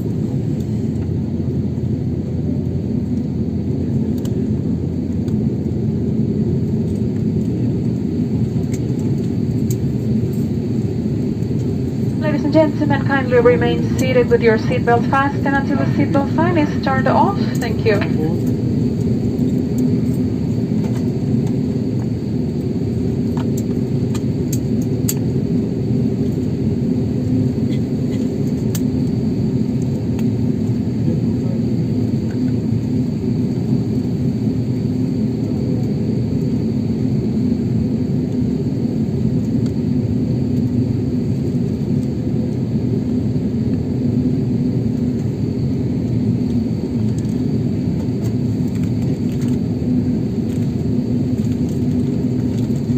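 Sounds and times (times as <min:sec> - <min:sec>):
jet cabin rumble: 0:00.0 - 0:24.3
faint high whine: 0:11.8 - 0:18.8.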